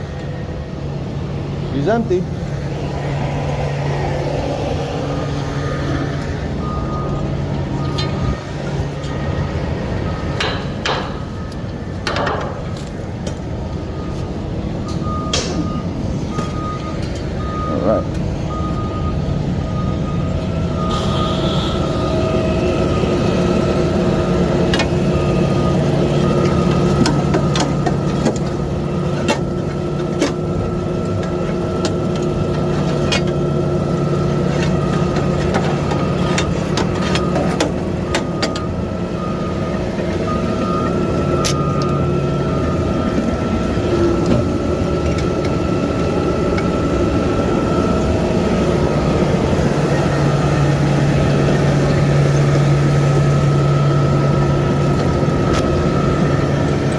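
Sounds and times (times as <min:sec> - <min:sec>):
garbage truck engine running: 0:00.0 - 0:56.9
clanks and knocks: 0:10.3 - 0:11.3, 0:12.0 - 0:13.4.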